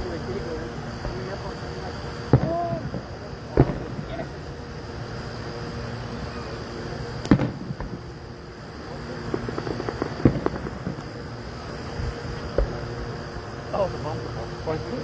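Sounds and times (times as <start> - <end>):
firework bangs: 2.2 - 4.4, 7.2 - 8.3, 9.1 - 13.1
crackling firework pops: 2.3 - 4.1, 7.2 - 8.0, 9.2 - 11.2, 12.3 - 12.8.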